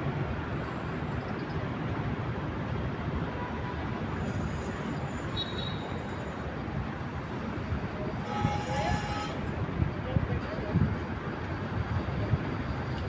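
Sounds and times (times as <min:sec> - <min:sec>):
urban traffic rumble: 0:00.0 - 0:13.0.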